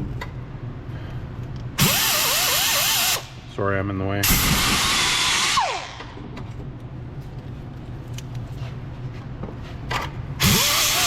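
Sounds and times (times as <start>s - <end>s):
low steady hum: 0.0s - 11.0s
power drill whining: 1.8s - 3.2s, 10.4s - 11.0s.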